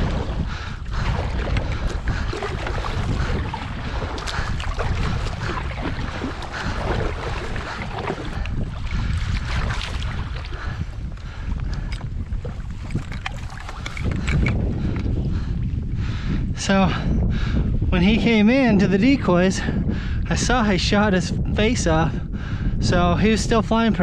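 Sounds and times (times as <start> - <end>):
water sloshing: 0.0 - 14.6
wind buffeting microphone: 0.0 - 24.0.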